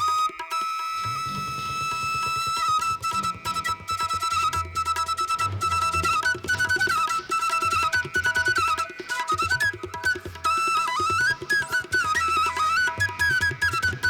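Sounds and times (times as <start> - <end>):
flute-like melody: 0.0 - 14.0
quick drum pulse: 1.0 - 7.0.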